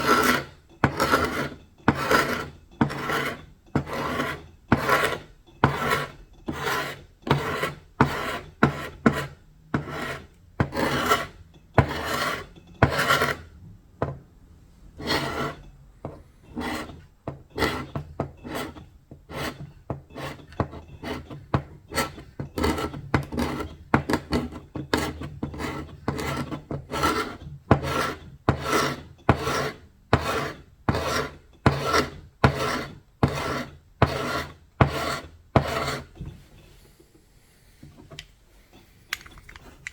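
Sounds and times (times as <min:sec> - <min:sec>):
hand sanding wood: 0:24.9 - 0:36.2.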